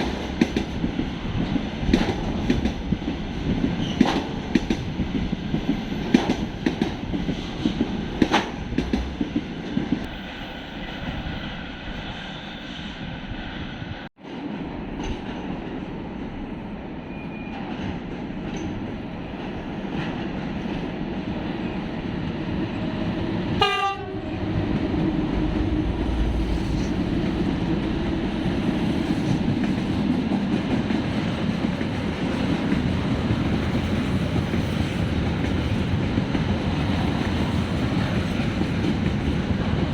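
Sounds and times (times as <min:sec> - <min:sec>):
train wheels knocking on rail joints: 0:00.0 - 0:10.0
train rumbling past: 0:00.0 - 0:39.9.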